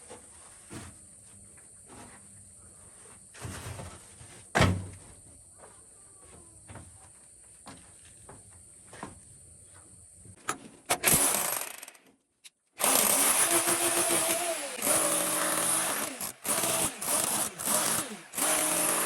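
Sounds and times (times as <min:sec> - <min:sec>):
electric hammer drill running: 0:11.1 - 0:12.0, 0:12.8 - 0:19.0.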